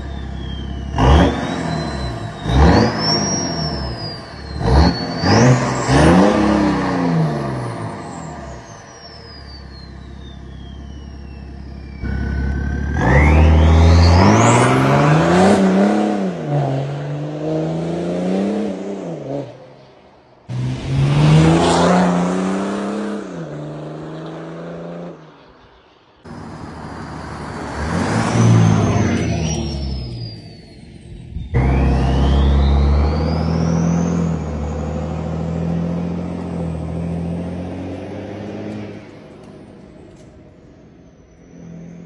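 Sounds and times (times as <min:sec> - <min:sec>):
turbo whistle: 0:00.0 - 0:14.6
diesel car engine accelerating: 0:00.0 - 0:42.0.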